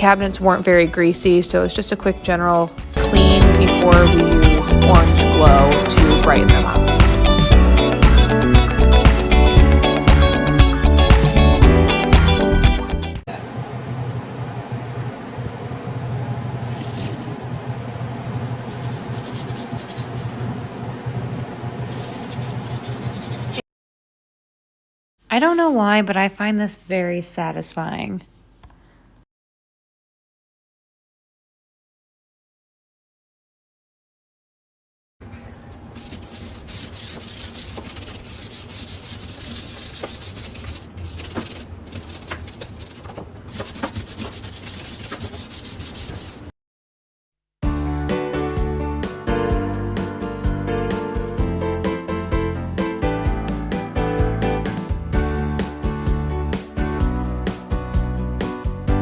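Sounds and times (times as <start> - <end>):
steady low hum: 13.2 - 23.6
scrubbing a kitchen surface: 15.9 - 23.6, 35.9 - 46.5.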